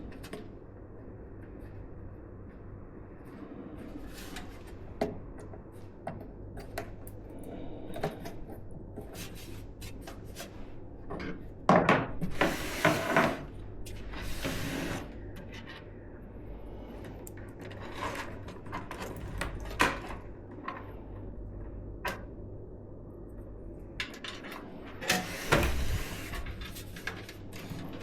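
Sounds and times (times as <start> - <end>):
rustling and scraping: 3.2 - 6.0, 8.0 - 11.4, 12.2 - 16.0, 16.8 - 21.2, 24.2 - 28.0.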